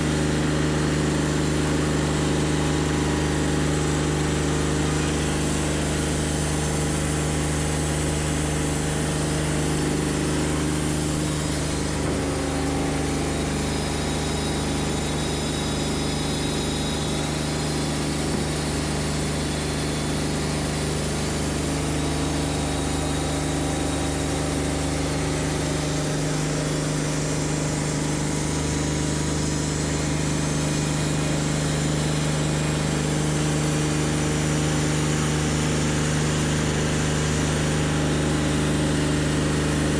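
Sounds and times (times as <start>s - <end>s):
bandsaw sawmill engine running: 0.0s - 39.9s.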